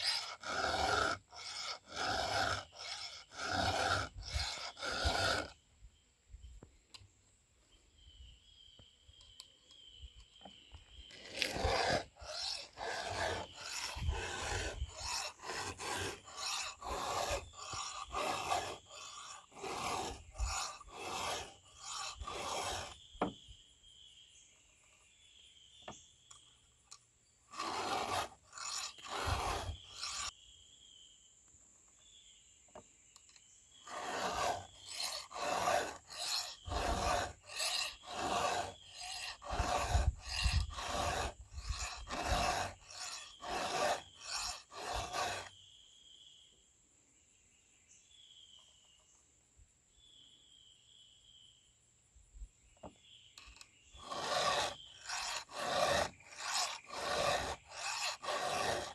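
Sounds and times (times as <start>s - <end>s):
hand file rasping on metal teeth: 0.0s - 5.6s, 11.1s - 23.4s, 27.5s - 30.3s, 33.8s - 45.6s, 53.4s - 58.9s.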